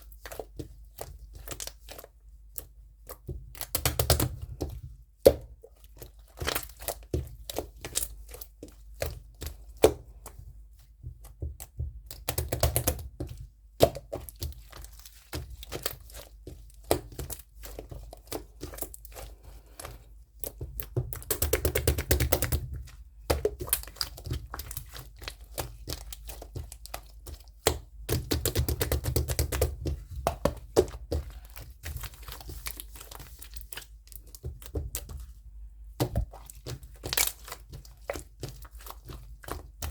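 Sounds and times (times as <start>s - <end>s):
crinkling or tearing: 36.4s - 39.7s.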